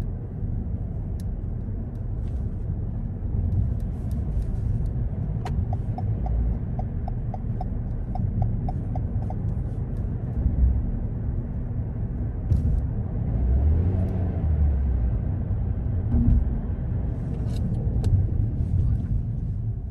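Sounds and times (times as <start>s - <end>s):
car engine and tyre rumble: 0.0s - 19.9s
light ticking: 5.5s - 10.1s.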